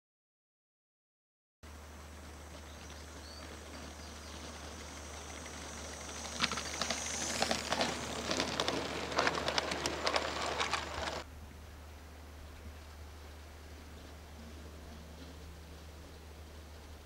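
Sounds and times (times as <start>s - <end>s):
steady low hum: 1.7s - 17.0s
model locomotive clicking and chuffing: 2.0s - 11.3s.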